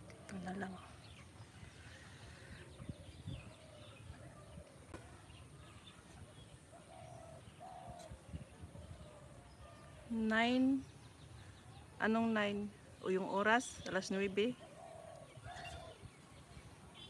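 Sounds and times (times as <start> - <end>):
small birds chirping: 0.0 - 17.0
dove cooing: 6.5 - 10.1, 14.6 - 16.1.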